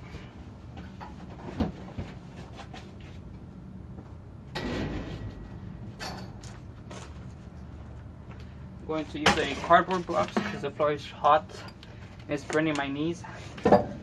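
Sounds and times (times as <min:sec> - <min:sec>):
low background rumble: 0:03.4 - 0:09.0.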